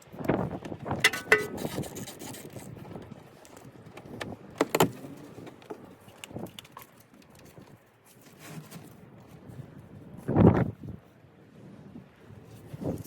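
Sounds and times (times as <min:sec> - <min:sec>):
metal tools clinking and knocking: 0:01.0 - 0:01.7.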